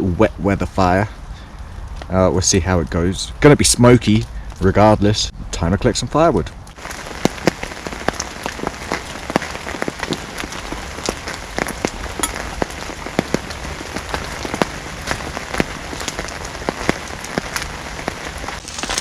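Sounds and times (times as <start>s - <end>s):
rain hissing: 0.0s - 19.0s
raindrops tapping: 6.7s - 19.0s.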